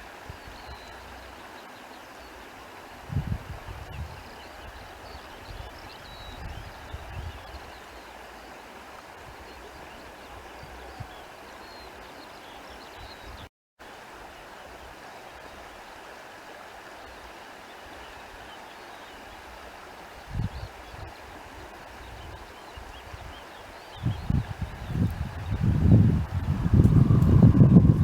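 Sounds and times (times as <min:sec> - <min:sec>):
stream running: 0:00.0 - 0:28.0
low rumbles: 0:25.6 - 0:28.0.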